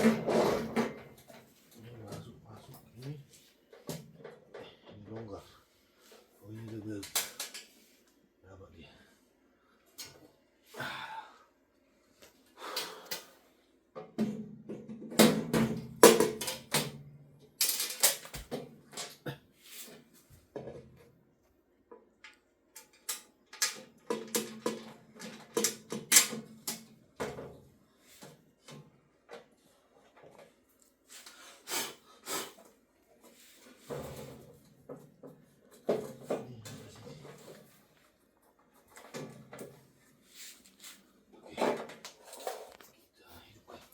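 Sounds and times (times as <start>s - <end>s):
equipment parts clicking and rattling: 17.6s - 19.2s, 22.8s - 27.5s.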